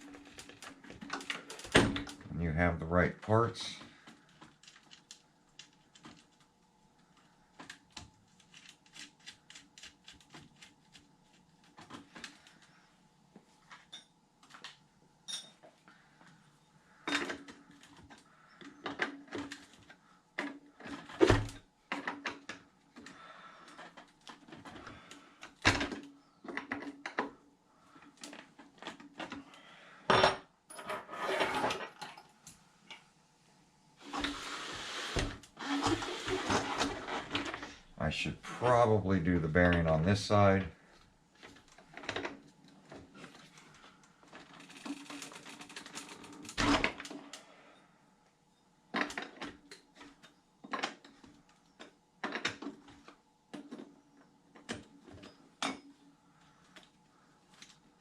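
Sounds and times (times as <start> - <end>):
tools and parts clicking: 13.8 - 15.7.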